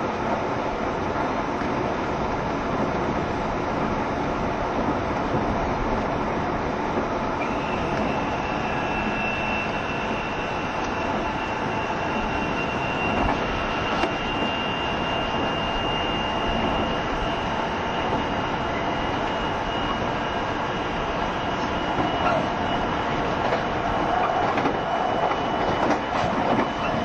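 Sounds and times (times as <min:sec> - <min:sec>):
train wheel and track rumble: 0:00.0 - 0:27.0
thin high whine: 0:07.4 - 0:27.0.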